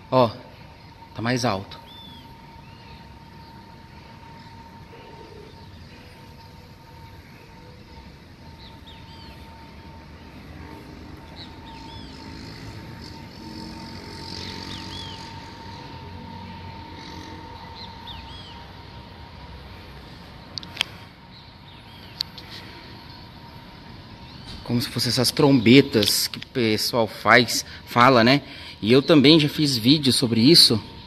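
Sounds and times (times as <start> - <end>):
cluster of lower tones: 0.0 - 31.0
small birds chirping: 0.0 - 31.0
steady droning tone: 0.0 - 31.0.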